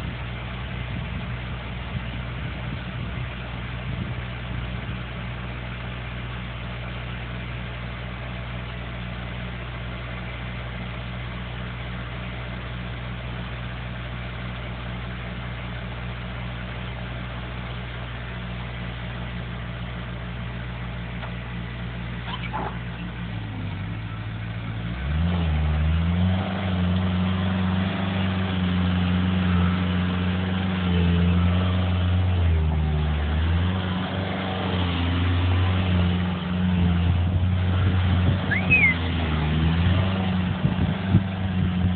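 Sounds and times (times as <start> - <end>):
heavy machine engine revving: 22.2 - 41.9.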